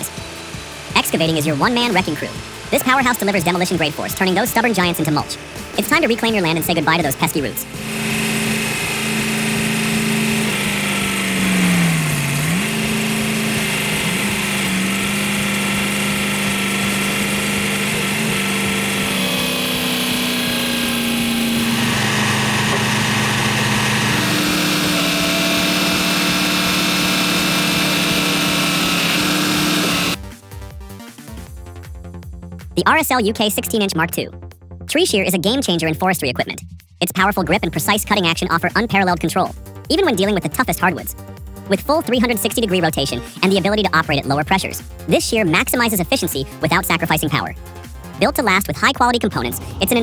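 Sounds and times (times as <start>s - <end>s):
excavator engine under load: 0.0s - 30.2s, 48.8s - 50.0s.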